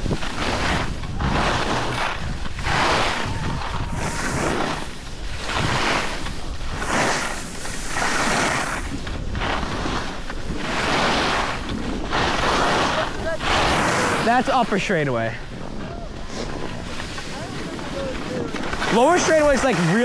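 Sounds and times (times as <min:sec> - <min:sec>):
snow scraping under skis: 0:00.0 - 0:20.0
wind rushing over microphone: 0:00.0 - 0:20.0.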